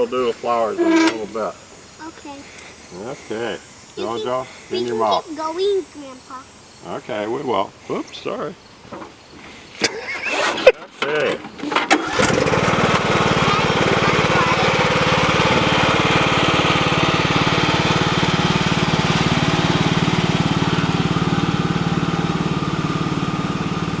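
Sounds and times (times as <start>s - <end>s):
tractor engine running: 11.9s - 24.0s.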